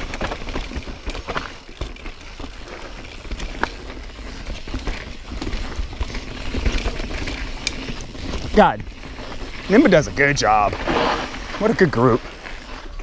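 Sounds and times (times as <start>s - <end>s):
bike rattling over bumps: 0.0s - 13.0s
bike tyres on dirt trail: 0.0s - 13.0s.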